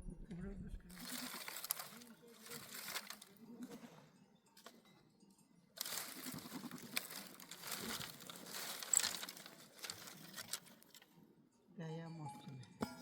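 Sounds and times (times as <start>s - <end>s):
crinkling and crunching: 0.9s - 3.9s, 5.8s - 11.1s.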